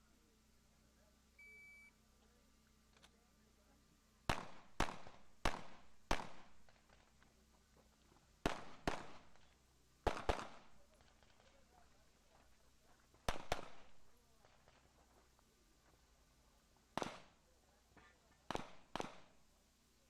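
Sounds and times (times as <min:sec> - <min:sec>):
pistol shots with echo: 0:04.3 - 0:06.6, 0:08.4 - 0:09.3, 0:10.1 - 0:10.7, 0:13.3 - 0:13.9, 0:18.5 - 0:19.4.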